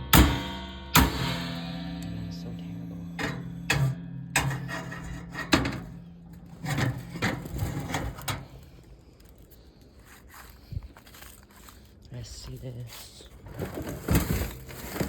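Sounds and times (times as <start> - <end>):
toaster oven being smashed: 0.0 - 8.8
low steady hum: 0.0 - 10.2.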